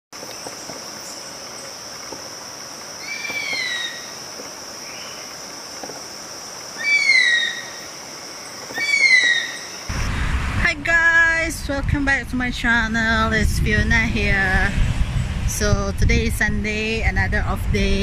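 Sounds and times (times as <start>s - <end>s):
bird whistling call: 3.0s - 4.1s, 6.8s - 7.8s, 8.8s - 9.7s.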